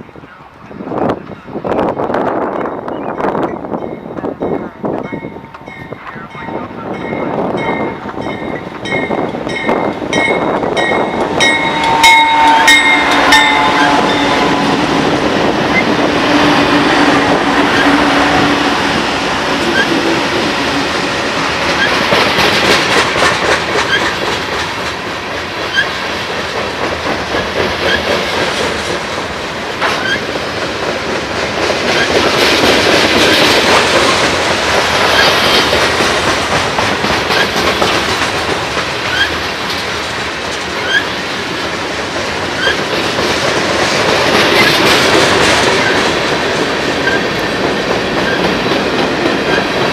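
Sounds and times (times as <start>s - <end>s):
train wheels rumbling on rail: 0.0s - 49.9s
wheels clicking over rail joints: 19.5s - 49.9s.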